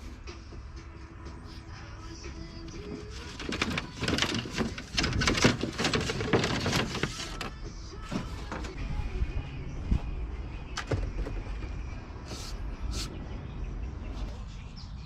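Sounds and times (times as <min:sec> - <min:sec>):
hard objects clattering: 0:02.7 - 0:08.8.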